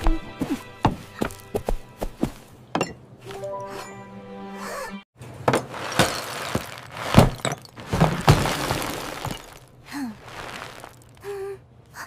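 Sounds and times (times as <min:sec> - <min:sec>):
glass breaking and clattering: 0:05.8 - 0:09.8.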